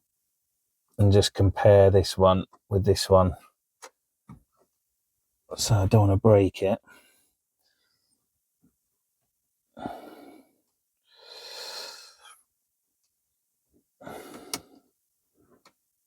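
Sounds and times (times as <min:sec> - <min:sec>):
man breathing and grunting: 0:09.8 - 0:12.4, 0:14.0 - 0:14.9.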